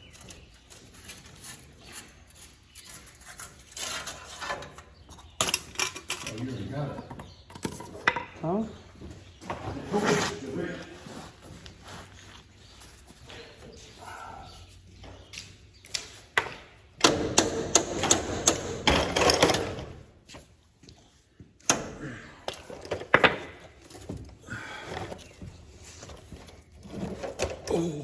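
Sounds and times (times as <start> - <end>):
hand tools knocking and clattering: 3.7 - 8.4, 16.4 - 20.0.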